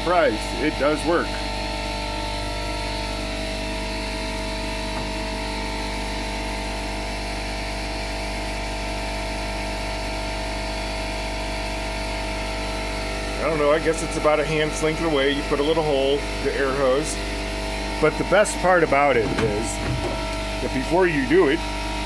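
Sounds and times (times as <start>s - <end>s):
machine motor humming: 17.8s - 21.4s.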